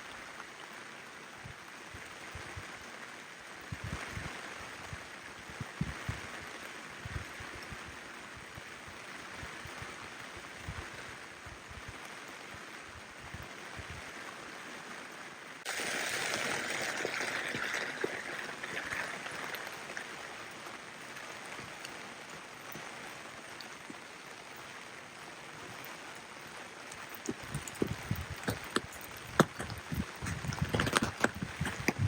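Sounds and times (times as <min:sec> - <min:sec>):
rushing hiss of water: 0:00.0 - 0:32.0
steady rain: 0:00.0 - 0:32.0.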